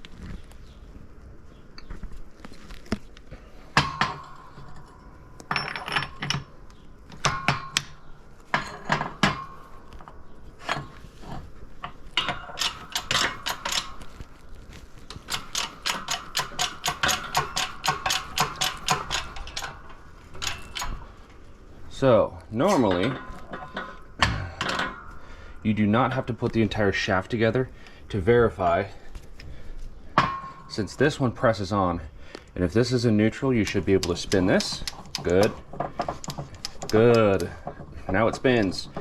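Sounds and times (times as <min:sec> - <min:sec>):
metal gears clicking and clinking: 0:03.8 - 0:21.3, 0:32.7 - 0:39.0.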